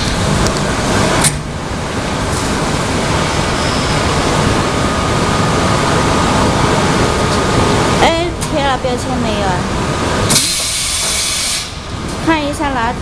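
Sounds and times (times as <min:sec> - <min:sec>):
steady loud machine noise: 0:00.0 - 0:13.0
faint high steady tone: 0:03.5 - 0:05.6
sharp click: 0:10.3 - 0:11.2.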